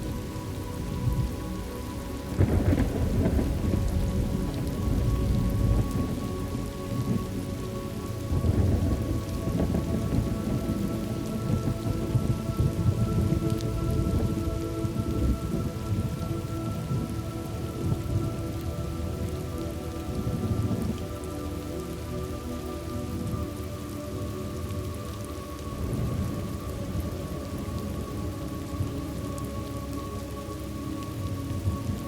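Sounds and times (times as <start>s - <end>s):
steady rain: 0.0s - 32.0s
low rolls of thunder: 0.8s - 21.7s.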